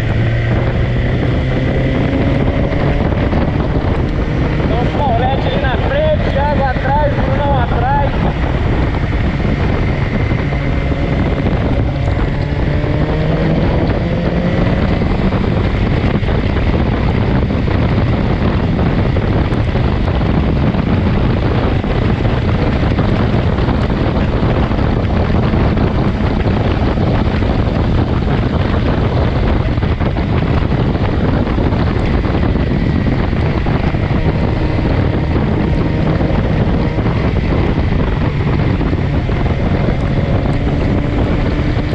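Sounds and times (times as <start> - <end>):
motorcycle engine running: 0.0 - 41.9
wind roaring over microphone: 0.0 - 41.9.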